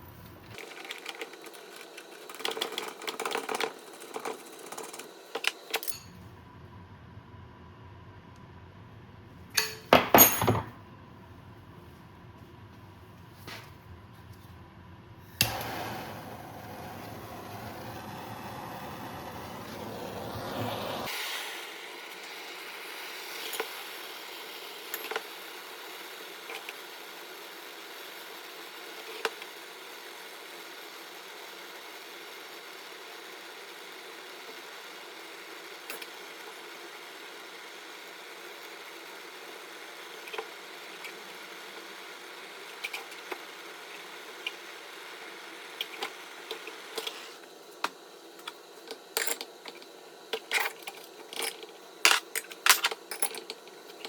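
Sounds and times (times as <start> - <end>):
tools clicking and knocking: 9.6 - 10.8, 47.8 - 54.0.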